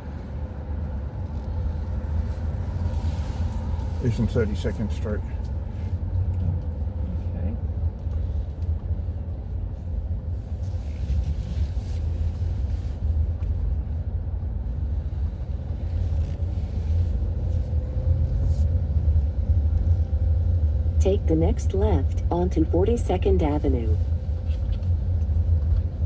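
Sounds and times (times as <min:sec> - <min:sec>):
road vehicle low rumble: 0:00.0 - 0:26.0.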